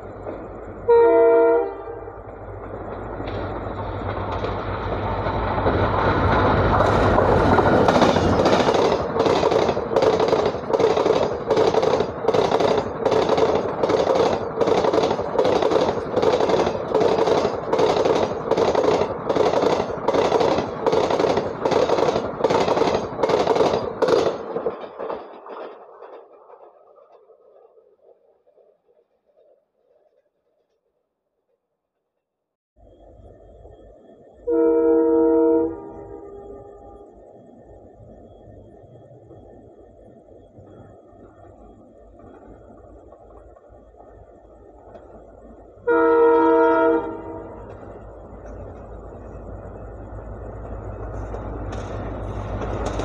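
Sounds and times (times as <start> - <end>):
locomotive engine rumble: 0.0 - 27.2, 32.8 - 53.0
train horn blast: 0.8 - 2.4, 34.4 - 37.2, 45.8 - 47.8
wheels clacking over rail joints: 2.0 - 30.8, 39.3 - 53.0.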